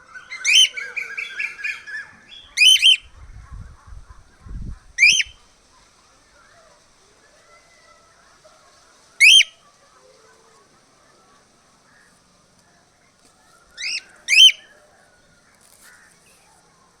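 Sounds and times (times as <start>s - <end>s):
faint chatter: 0.0s - 17.0s
cockatiel whistled calls: 0.1s - 3.1s, 5.0s - 5.4s, 9.2s - 9.6s, 13.8s - 14.8s.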